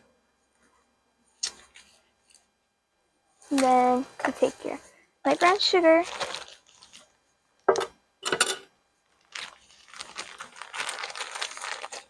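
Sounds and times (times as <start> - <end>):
bag rustling: 5.3 - 7.0, 9.2 - 12.0.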